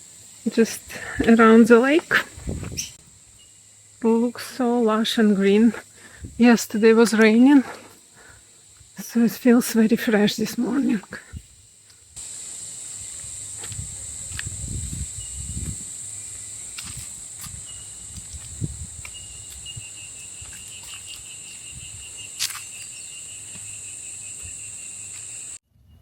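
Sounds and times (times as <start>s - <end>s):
fast pulsed insect trill: 0.0s - 25.6s
high-pitched insect chorus: 0.0s - 25.6s.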